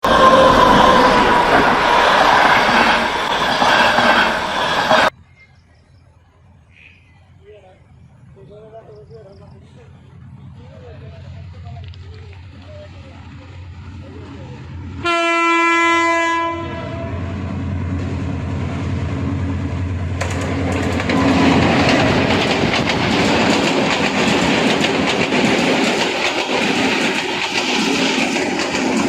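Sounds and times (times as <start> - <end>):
diesel locomotive horn: 0.0 - 1.9, 14.9 - 17.5
wheels clacking on rail: 0.0 - 5.1, 17.6 - 29.0
train rumble: 0.0 - 29.0.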